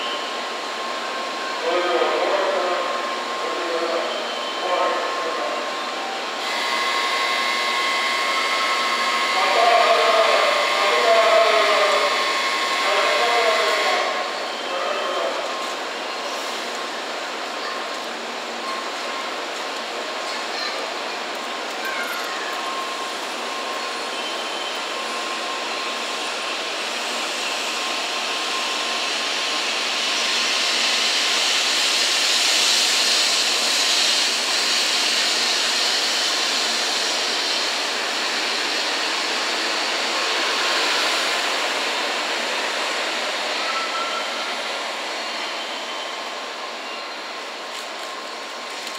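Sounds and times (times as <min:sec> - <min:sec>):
high-speed train passing: 0:00.0 - 0:48.9.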